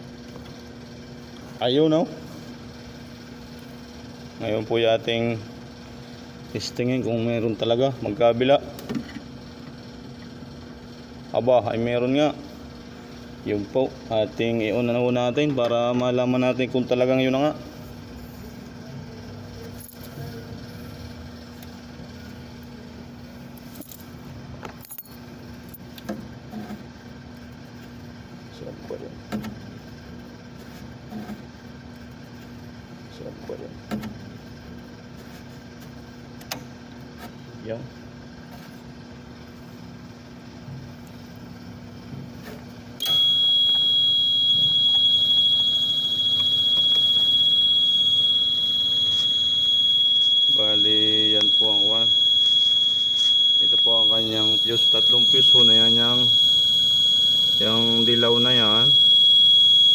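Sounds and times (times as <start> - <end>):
refrigerated truck machinery hum: 0.0 - 59.9
high-pitched electronic beep: 43.0 - 59.9.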